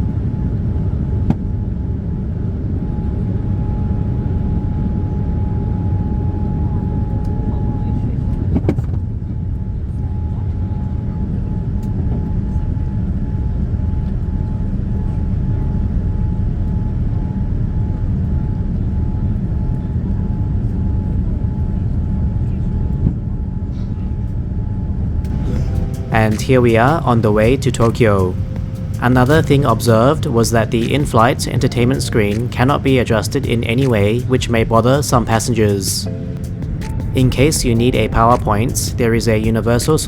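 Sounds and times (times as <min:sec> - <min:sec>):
faint high whine: 0:00.0 - 0:40.0
jet engine and airflow rumble: 0:00.0 - 0:40.0.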